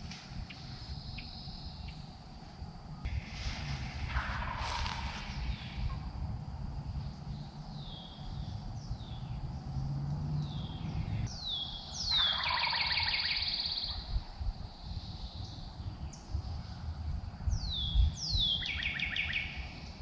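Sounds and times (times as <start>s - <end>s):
bird whistling downward notes: 10.4s - 14.1s.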